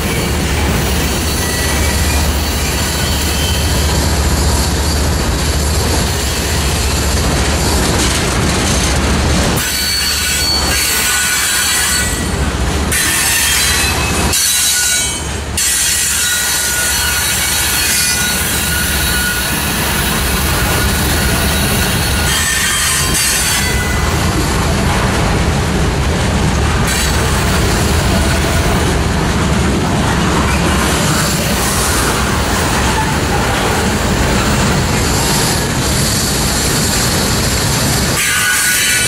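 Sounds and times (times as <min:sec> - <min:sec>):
freight train rumble: 0:00.0 - 0:39.0
high-pitched wheel squeal: 0:01.2 - 0:05.1, 0:09.6 - 0:12.3, 0:13.0 - 0:24.1.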